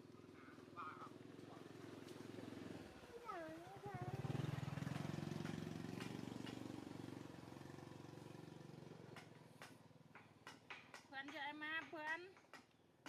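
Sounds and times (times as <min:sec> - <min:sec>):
small motorbike engine pulsing: 0:00.0 - 0:09.8.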